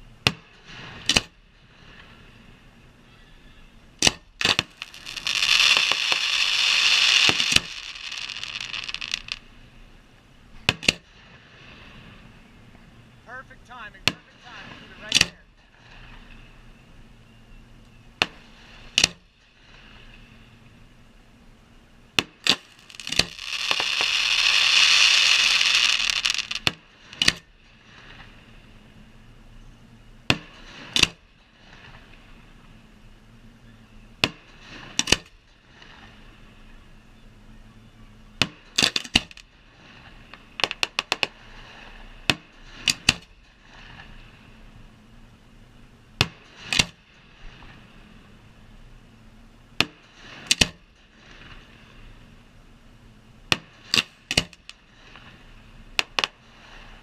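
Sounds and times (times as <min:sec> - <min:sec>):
firework bangs: 0:04.0 - 0:09.4, 0:22.2 - 0:28.3
loud hissing rush: 0:04.5 - 0:09.6, 0:22.4 - 0:27.2.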